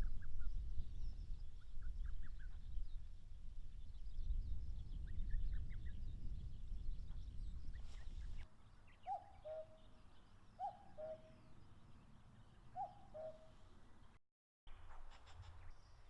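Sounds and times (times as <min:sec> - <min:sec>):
small birds chirping: 0:00.0 - 0:14.2
cuckoo calling: 0:09.0 - 0:09.9, 0:10.6 - 0:11.6, 0:12.7 - 0:13.6.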